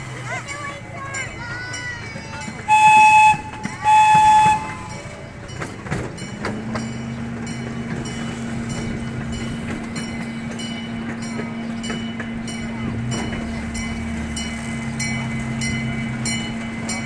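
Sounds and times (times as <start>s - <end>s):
train engine hum: 0.0s - 17.0s
small train toot: 0.4s - 17.0s.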